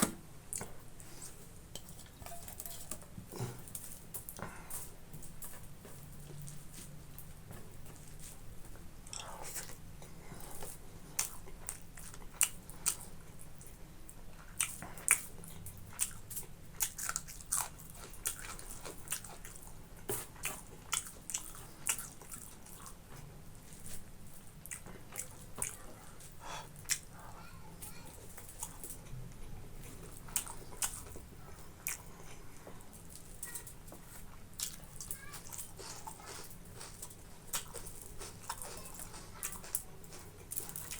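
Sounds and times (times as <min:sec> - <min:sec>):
person chewing and biting: 0:14.5 - 0:23.0, 0:29.8 - 0:32.4, 0:34.0 - 0:40.9.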